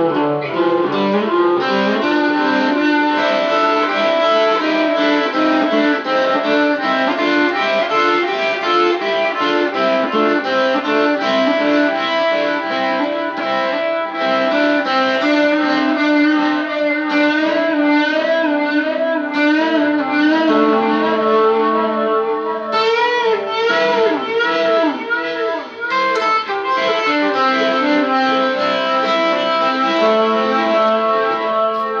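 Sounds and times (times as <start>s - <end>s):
electric guitar rock solo: 0.0s - 32.0s.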